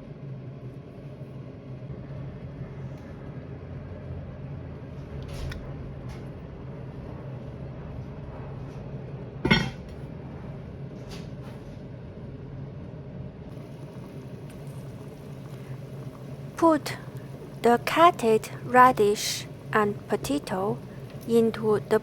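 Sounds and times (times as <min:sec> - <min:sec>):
low kitchen hum: 0:00.0 - 0:22.0
cookware clinking: 0:09.5 - 0:09.8.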